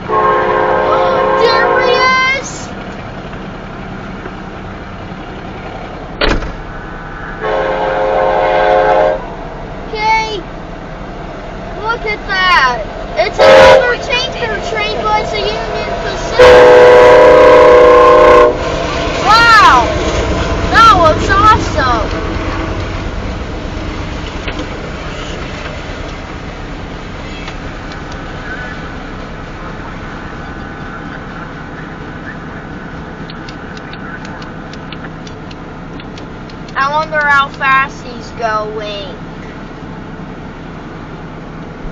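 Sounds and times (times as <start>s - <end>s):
locomotive air horn: 0.0s - 2.4s, 6.8s - 9.4s, 13.2s - 18.8s
train rumble: 0.0s - 41.9s.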